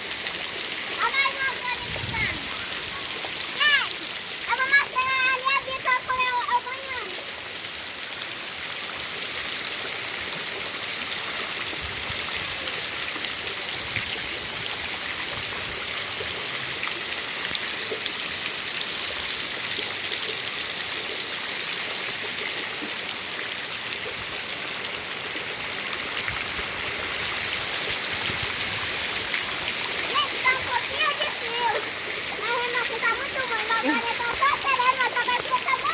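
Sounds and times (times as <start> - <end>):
heavy rain hissing: 0.0 - 8.8, 28.0 - 35.9
runoff water flowing: 0.0 - 35.9.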